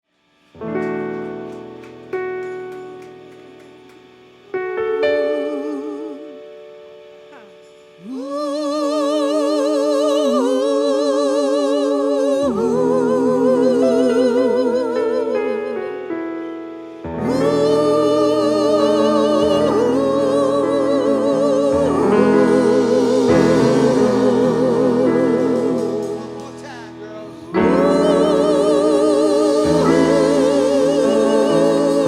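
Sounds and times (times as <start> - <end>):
voices singing held harmonies: 5.0 - 6.5, 7.3 - 16.2, 16.8 - 32.0.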